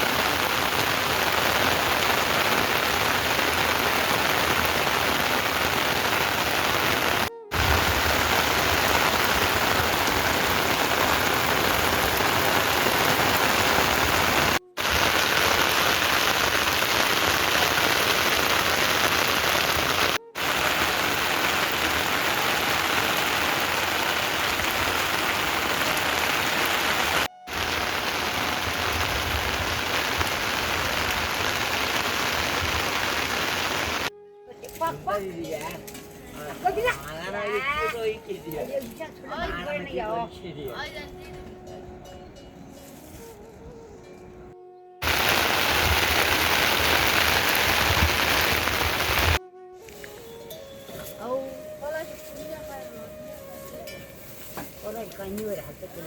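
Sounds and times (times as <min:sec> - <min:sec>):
heavy rain hissing: 0:00.0 - 0:34.1, 0:45.0 - 0:49.4.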